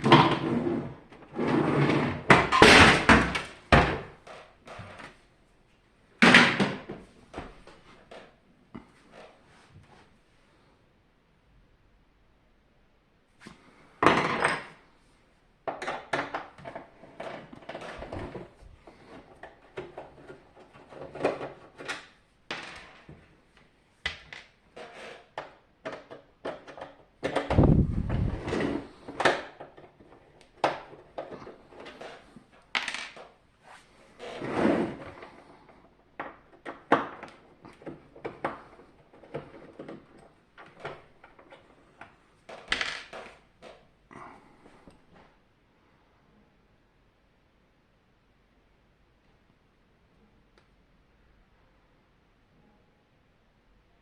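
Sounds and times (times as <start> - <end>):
plastic and metal parts clattering: 15.7 - 23.2.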